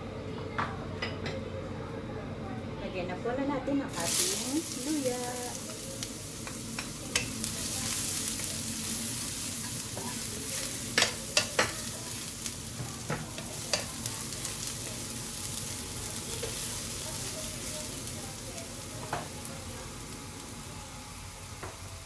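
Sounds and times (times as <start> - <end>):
ginger sizzling in hot oil: 3.9 - 22.0
spatula clicking against pan: 6.4 - 7.4, 10.9 - 11.8, 13.7 - 13.9.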